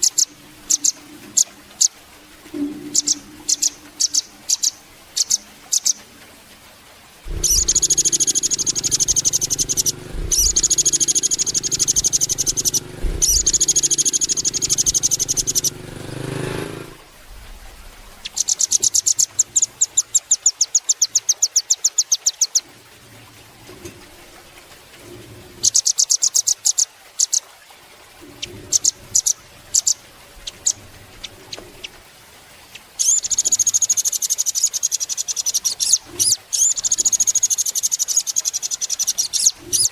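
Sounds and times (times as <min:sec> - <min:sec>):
bird high-pitched trills: 0:02.6 - 0:06.0, 0:07.3 - 0:15.8, 0:33.0 - 0:39.9.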